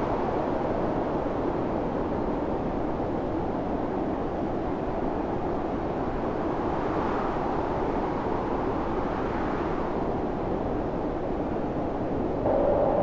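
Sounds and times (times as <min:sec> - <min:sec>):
storm wind blowing: 0:12.2 - 0:13.0.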